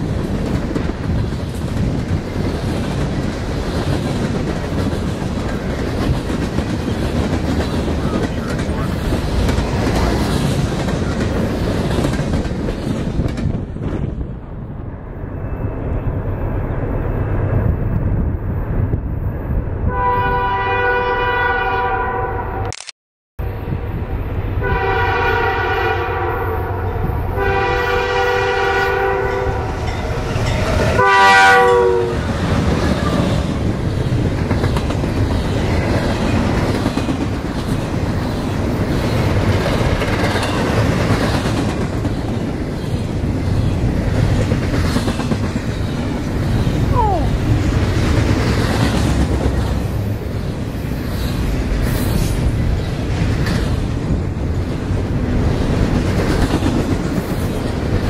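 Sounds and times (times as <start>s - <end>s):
train rumbling and clattering by: 0.0s - 21.7s, 23.4s - 58.0s
locomotive air horn blasts: 19.9s - 22.7s, 24.6s - 29.7s, 31.0s - 32.2s.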